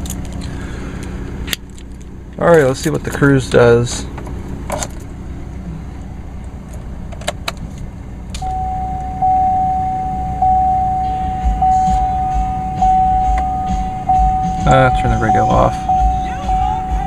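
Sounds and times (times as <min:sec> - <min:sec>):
low engine rumble: 0:00.0 - 0:17.0
car dashboard warning chime: 0:08.4 - 0:17.0.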